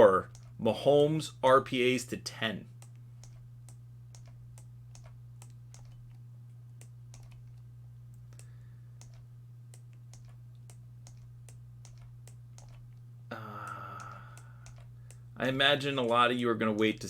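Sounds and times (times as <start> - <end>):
low hum: 0.0 - 17.0
keyboard typing clicks: 0.3 - 0.6, 2.8 - 6.2, 6.8 - 13.0, 13.6 - 15.2, 15.8 - 17.0.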